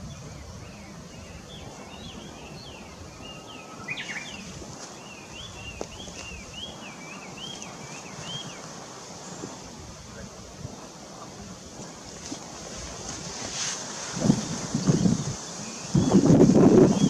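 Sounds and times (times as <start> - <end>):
small bird singing: 0.0 - 8.7, 15.0 - 17.0
wind rumble on microphone: 0.0 - 17.0.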